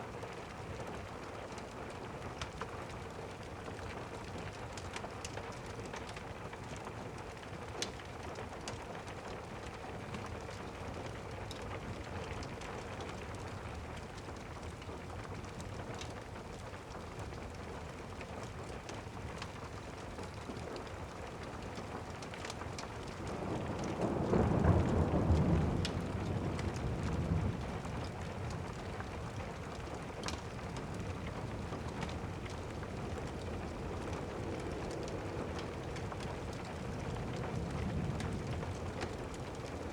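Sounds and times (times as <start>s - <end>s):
steady rain: 0.0s - 39.9s
fireplace crackles: 0.1s - 39.9s
rolling thunder: 23.2s - 39.9s.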